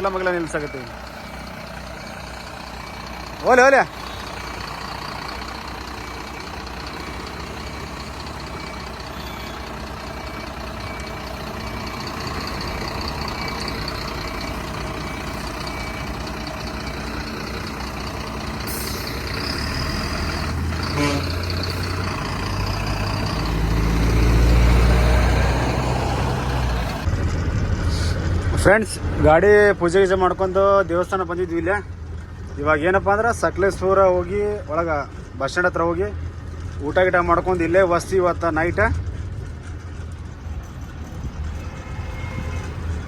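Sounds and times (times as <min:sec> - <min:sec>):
reversing beeps: 0:00.0 - 0:05.3, 0:06.0 - 0:19.8
truck diesel engine running: 0:00.0 - 0:43.0.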